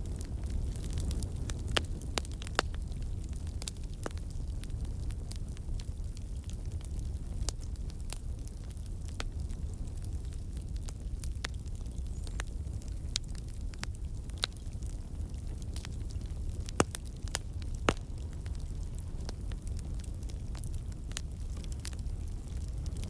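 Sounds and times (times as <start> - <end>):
burning logs crackling: 0.0 - 23.0
flames rumbling: 0.0 - 23.0
sharp fire pops: 15.8 - 23.0.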